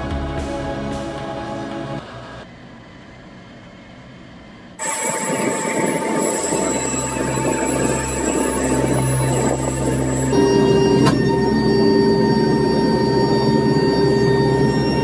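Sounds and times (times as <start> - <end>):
background music: 0.0 - 2.0
aircraft engine rumble and whine: 0.6 - 15.0.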